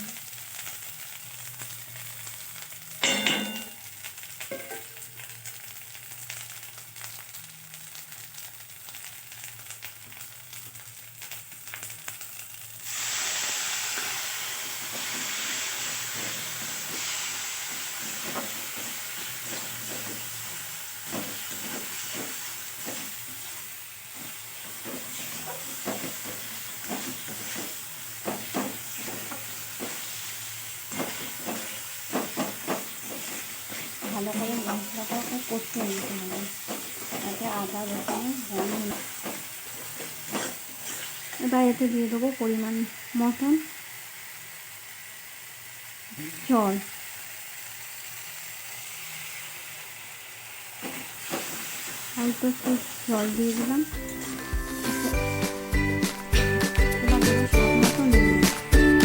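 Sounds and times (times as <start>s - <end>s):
spices frying in oil: 0.0s - 59.0s
spoon clattering against pan: 3.0s - 3.8s, 4.5s - 5.0s
stirring scrapes and knocks: 17.8s - 23.2s, 24.1s - 30.1s, 30.9s - 41.4s.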